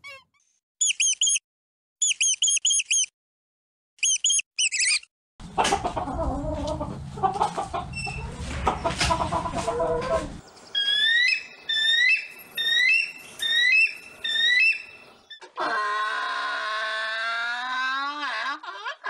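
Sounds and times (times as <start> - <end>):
mouse squeaks: 0.8 - 1.4, 2.0 - 3.1, 4.0 - 5.1
busy farmyard background: 4.0 - 19.0
hens clucking: 5.4 - 10.4.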